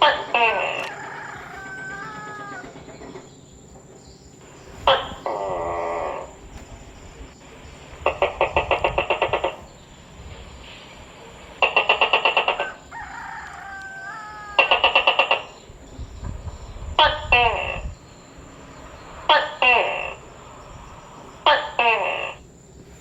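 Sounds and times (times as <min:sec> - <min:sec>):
gecko chattering chirps: 0:14.5 - 0:22.4.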